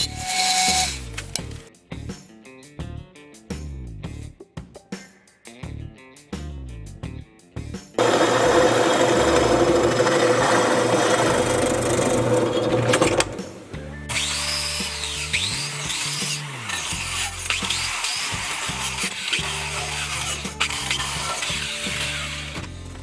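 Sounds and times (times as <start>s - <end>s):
power tool running: 0.0s - 1.6s, 8.0s - 22.8s
background music: 7.4s - 23.0s.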